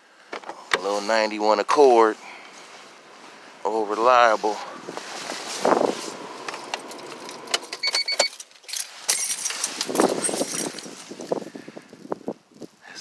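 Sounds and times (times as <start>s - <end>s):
keys jingling: 6.4s - 11.3s
electronic beeps: 7.8s - 8.3s.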